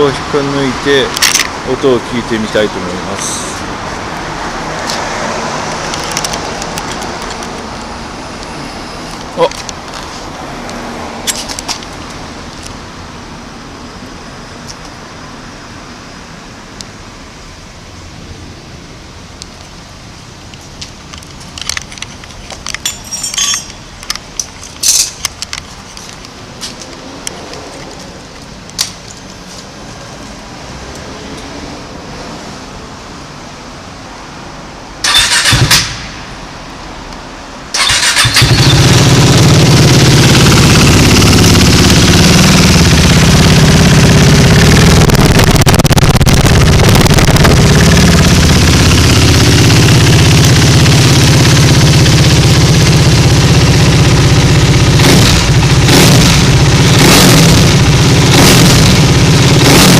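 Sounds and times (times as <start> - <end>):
engine cranking: 35.0 - 36.0, 37.7 - 52.2
motorcycle engine idling loudly: 38.0 - 59.9.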